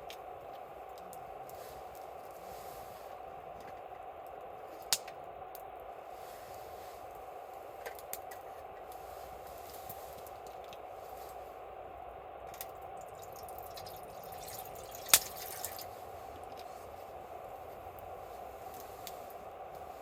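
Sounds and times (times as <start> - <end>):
campfire crackling: 0.0 - 20.0
steady hiss: 0.0 - 20.0
sharp pops of fire: 4.8 - 5.2, 12.5 - 15.9.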